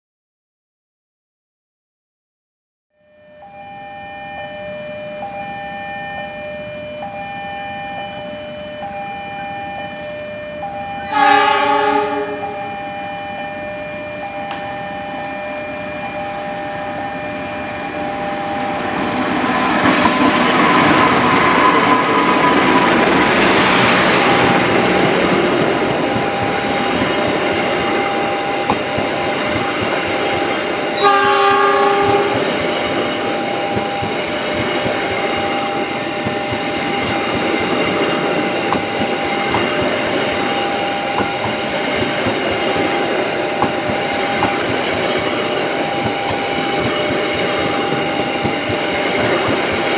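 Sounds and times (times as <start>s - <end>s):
faint steady tones: 3.0s - 20.5s, 21.8s - 49.9s
train horn blasts: 10.9s - 13.4s, 19.6s - 49.9s
train wheels rumbling and clattering: 16.0s - 49.9s.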